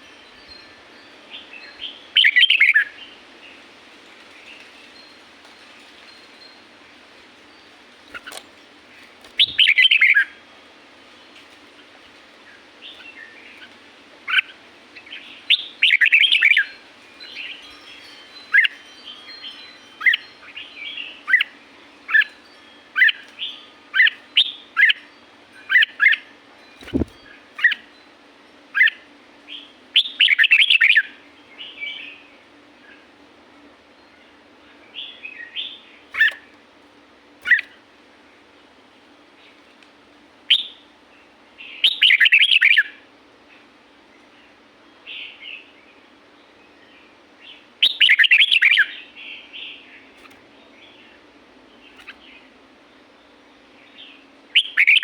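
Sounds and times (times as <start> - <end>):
bird singing: 1.3 - 3.6, 9.4 - 10.4, 12.5 - 28.1, 28.7 - 33.1, 34.0 - 36.5, 37.4 - 37.8, 40.5 - 40.9, 41.6 - 43.0, 44.2 - 55.0.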